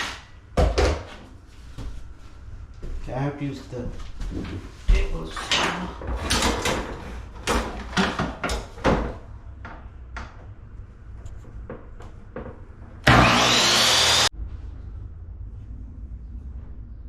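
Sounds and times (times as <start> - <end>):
table saw whining: 13.0 - 14.3.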